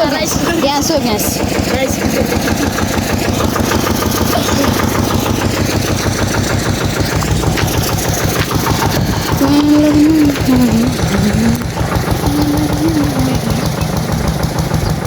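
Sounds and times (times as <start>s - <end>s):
engine chugging: 0.0s - 15.0s
held pitched tone: 8.9s - 15.0s.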